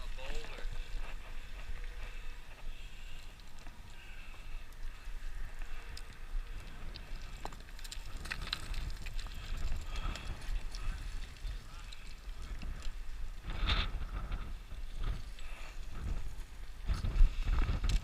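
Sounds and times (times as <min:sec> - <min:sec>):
gravel crackling underfoot: 0:00.0 - 0:18.0
wind rumbling on microphone: 0:00.0 - 0:18.0.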